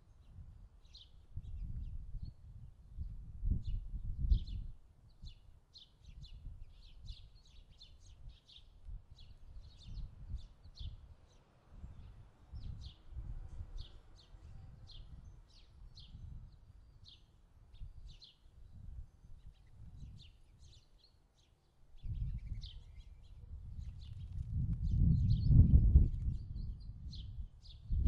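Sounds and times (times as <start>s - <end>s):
birds chirping: 3.6s - 13.2s, 13.8s - 28.0s
low rumble in gusts: 11.8s - 13.9s, 22.0s - 28.0s.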